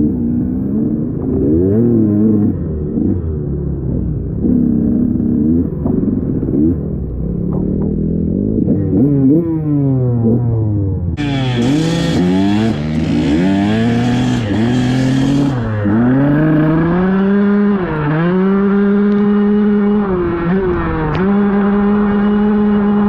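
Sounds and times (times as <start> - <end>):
dirt bike engine revving: 11.2 - 23.0.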